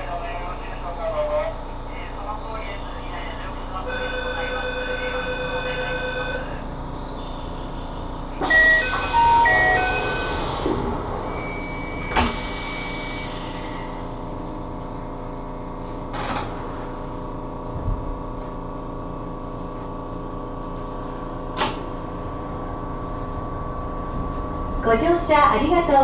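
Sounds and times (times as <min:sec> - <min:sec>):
train electrical hum: 0:00.0 - 0:26.0
brief high beep: 0:08.5 - 0:12.4.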